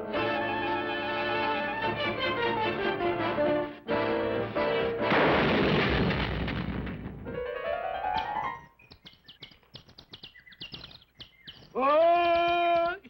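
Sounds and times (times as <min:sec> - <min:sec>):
orchestral music: 0:00.0 - 0:05.2
noisy blast sound effect: 0:05.0 - 0:07.5
faint rapid clicks and chirps: 0:08.1 - 0:13.0.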